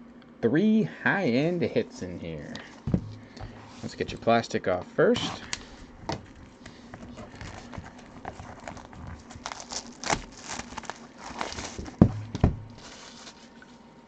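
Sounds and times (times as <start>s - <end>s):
box thumps: 2.8s - 3.6s, 11.7s - 12.8s
plastic wrap crinkling: 6.2s - 13.7s.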